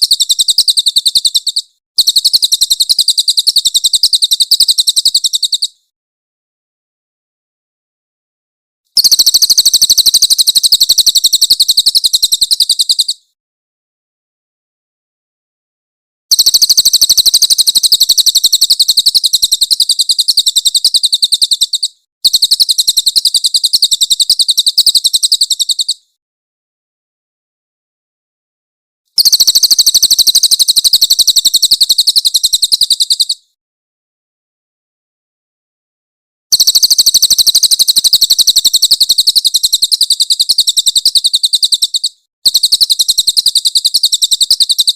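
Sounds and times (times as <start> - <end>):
bird rapid high-pitched trill: 0.0 - 5.8, 9.0 - 13.3, 16.3 - 26.1, 29.2 - 33.5, 36.5 - 44.9.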